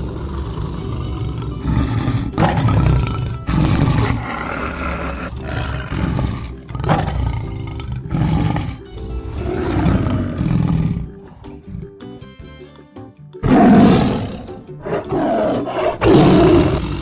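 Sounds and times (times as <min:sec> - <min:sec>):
large animal roaring: 0:00.0 - 0:11.8, 0:13.4 - 0:17.0
background music: 0:00.0 - 0:17.0.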